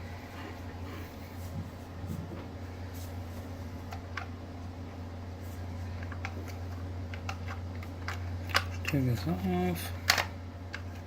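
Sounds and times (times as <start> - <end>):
steady low hum: 0.0 - 11.0
small parts clicking and tapping: 6.0 - 9.3, 10.1 - 11.0.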